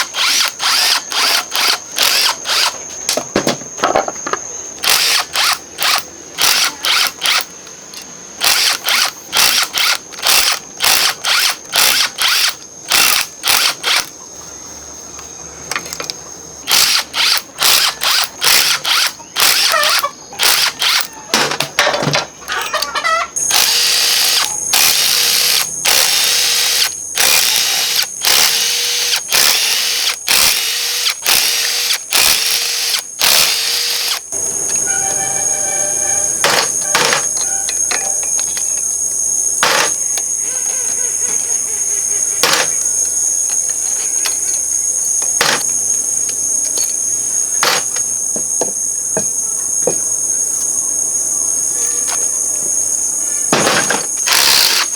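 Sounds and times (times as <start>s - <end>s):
power tool bursts: 0.0s - 2.8s, 4.8s - 7.5s, 8.4s - 14.1s, 16.7s - 21.1s, 23.4s - 34.8s, 36.3s - 37.4s, 39.6s - 40.0s, 42.4s - 42.8s, 45.4s - 45.7s, 53.5s - 54.9s.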